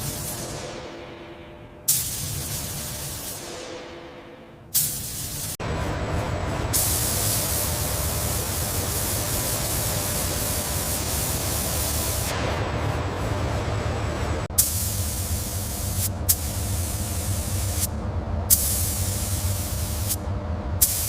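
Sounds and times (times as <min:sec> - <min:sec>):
paint spray guns hissing: 0:01.9 - 0:03.4, 0:04.8 - 0:05.6, 0:06.8 - 0:12.3, 0:14.6 - 0:17.9, 0:18.5 - 0:20.2, 0:20.8 - 0:21.0.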